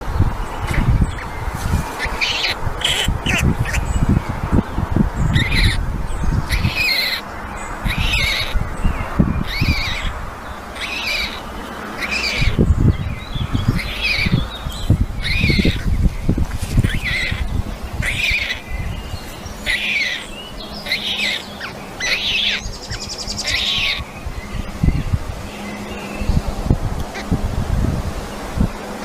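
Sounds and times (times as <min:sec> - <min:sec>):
wind rumble on microphone: 0:00.0 - 0:29.0
stork chicks calling: 0:00.6 - 0:04.3, 0:05.2 - 0:05.8, 0:06.4 - 0:24.1.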